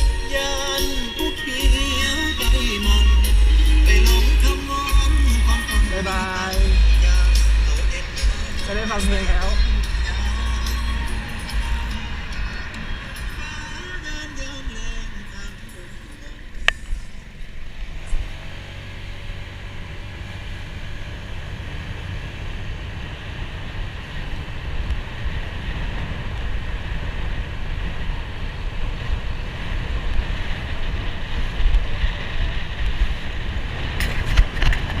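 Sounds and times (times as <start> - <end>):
motorcycle engine rumbling: 0.0 - 35.0
wind rushing over microphone: 1.9 - 35.0.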